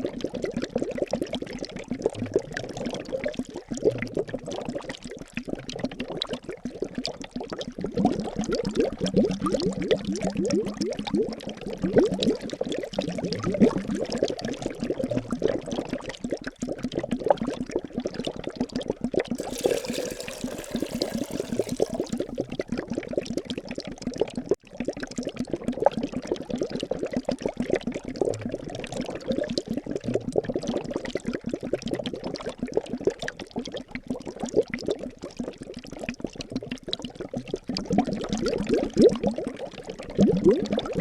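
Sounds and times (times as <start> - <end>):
liquid bubbling: 19.4 - 22.5.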